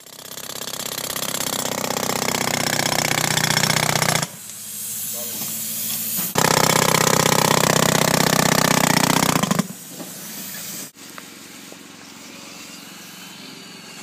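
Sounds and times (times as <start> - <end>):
jackhammer breaking concrete: 0.0 - 4.4, 6.4 - 9.7.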